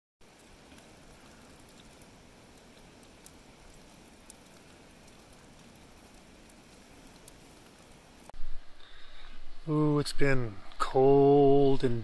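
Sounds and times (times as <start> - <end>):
sharp raindrops ticking: 0.2 - 8.4
light rain patter: 0.2 - 8.6.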